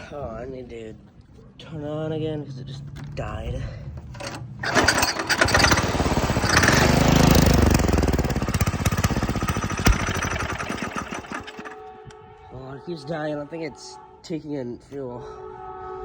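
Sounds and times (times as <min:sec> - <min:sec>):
go-kart engine revving and stalling: 0:04.1 - 0:11.8.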